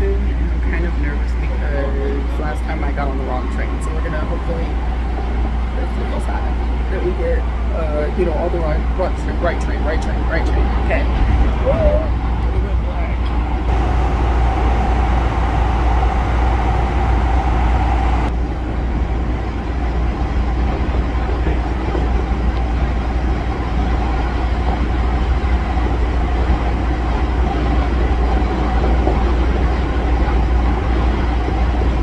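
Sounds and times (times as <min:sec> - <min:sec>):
train rumbling: 0:00.0 - 0:32.0
faint steady hum: 0:13.7 - 0:18.3.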